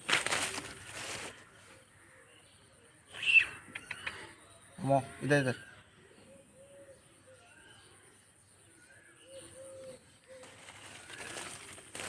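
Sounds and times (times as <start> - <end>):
rustling noise: 0.0 - 1.5, 10.4 - 12.0.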